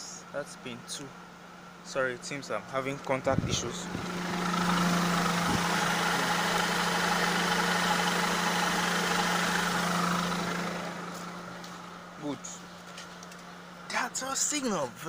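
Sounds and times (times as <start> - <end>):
car engine idling: 1.0 - 15.0.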